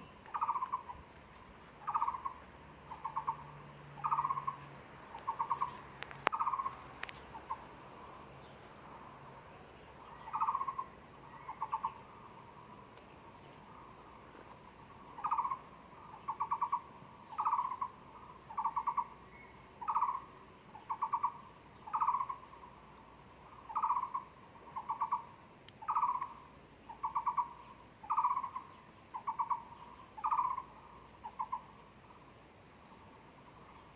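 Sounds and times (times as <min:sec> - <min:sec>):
bird hooting calls: 0:00.0 - 0:01.1, 0:01.8 - 0:07.7, 0:10.0 - 0:12.7, 0:14.8 - 0:22.8, 0:23.4 - 0:32.2.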